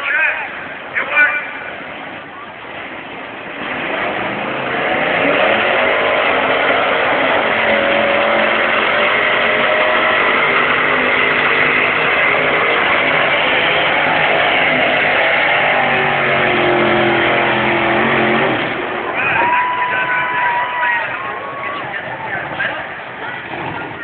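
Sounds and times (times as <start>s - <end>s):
vehicle engine at high revs: 2.8s - 19.2s, 21.8s - 24.0s.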